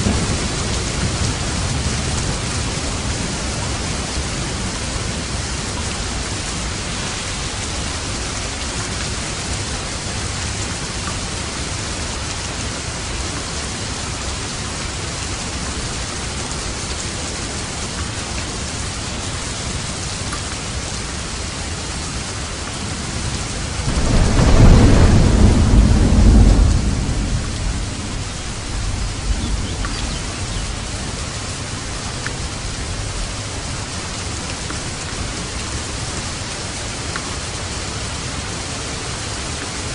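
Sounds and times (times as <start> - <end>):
heavy rain falling: 0.0 - 39.9
thunder rumbling: 23.2 - 33.3.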